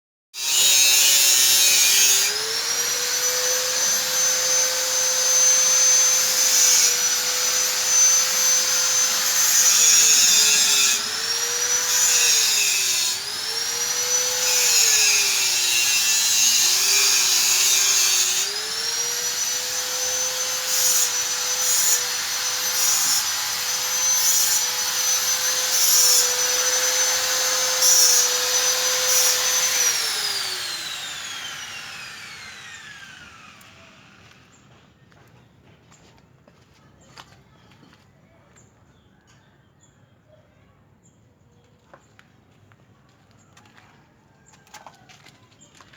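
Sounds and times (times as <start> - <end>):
rasping abrasive noise: 0.4 - 34.4
power tool whining: 0.4 - 34.7.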